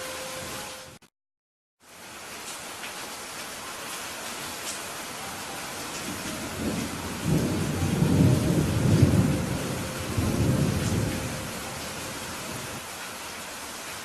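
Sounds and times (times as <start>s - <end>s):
steady rain: 0.0s - 1.0s, 1.8s - 14.0s
thunder rumbling: 5.8s - 12.8s.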